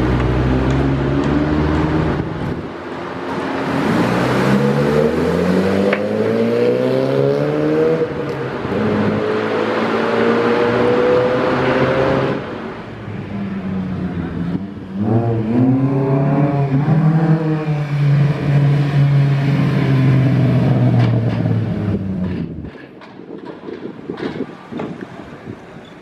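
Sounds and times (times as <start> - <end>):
car engine revving: 3.3 - 21.3.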